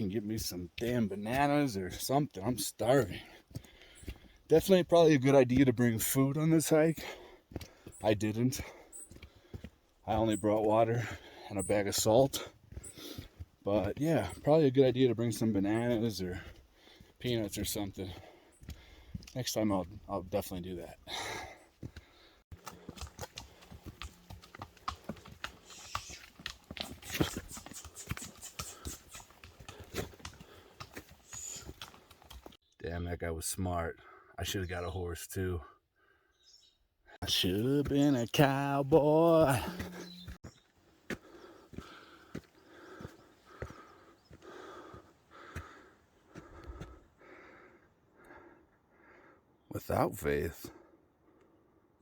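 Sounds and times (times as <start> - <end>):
footsteps on a trail: 0.0 - 32.6, 37.2 - 48.4
horse hooves clopping: 0.0 - 32.6, 37.2 - 45.8
heavy rhythmic breathing: 3.1 - 4.5, 16.0 - 17.2, 18.0 - 19.3, 25.5 - 32.5, 41.2 - 49.5.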